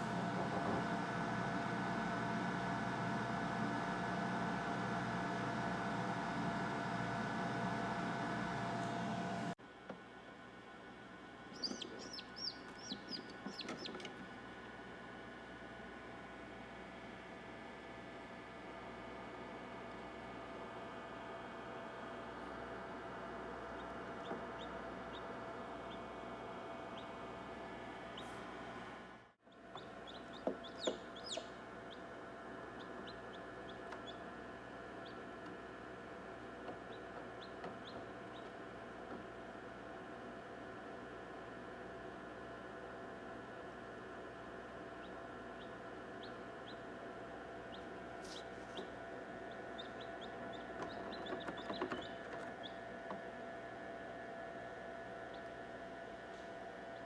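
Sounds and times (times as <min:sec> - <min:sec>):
chicks peeping: 0:11.5 - 0:14.2, 0:23.6 - 0:26.2, 0:29.6 - 0:35.3, 0:36.4 - 0:38.5, 0:44.9 - 0:53.2
steady hum: 0:44.2 - 0:57.0.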